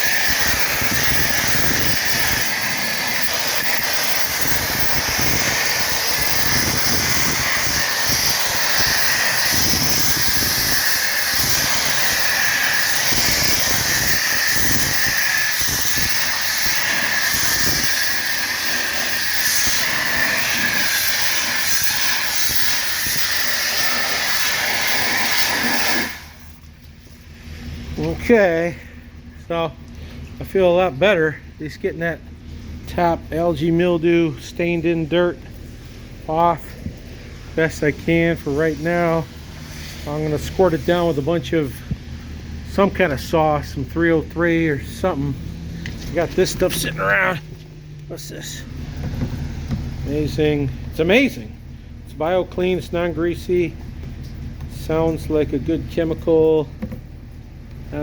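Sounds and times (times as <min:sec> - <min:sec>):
pressure washer spraying water: 0:00.0 - 0:27.0, 0:36.7 - 0:50.6.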